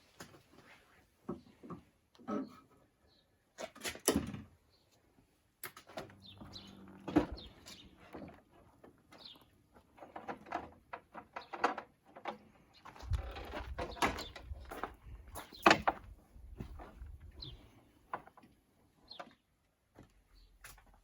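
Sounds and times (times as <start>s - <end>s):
wooden knocks and clicks: 10.1s - 17.2s.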